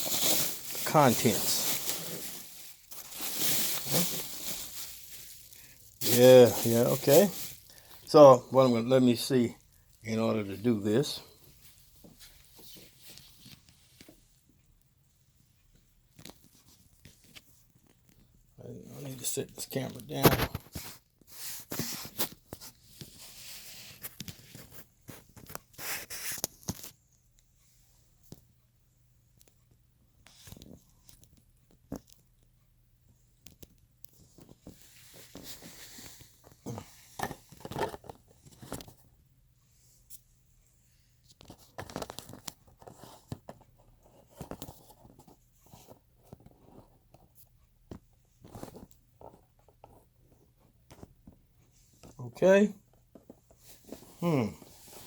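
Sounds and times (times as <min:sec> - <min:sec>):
packing material crinkling and tearing: 0:00.0 - 0:08.2
camera handling rustling and scraping: 0:34.2 - 0:39.0, 0:41.3 - 0:46.9.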